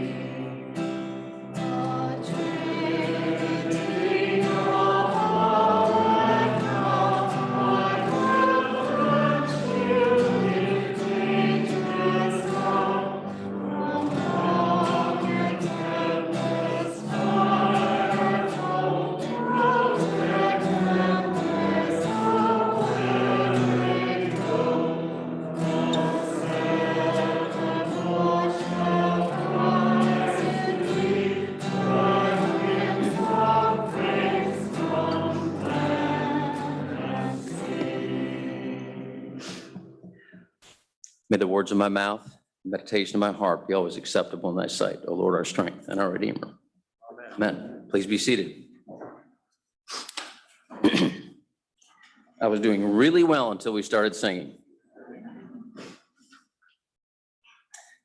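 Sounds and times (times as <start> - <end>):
congregation singing a hymn: 0.0 - 40.0.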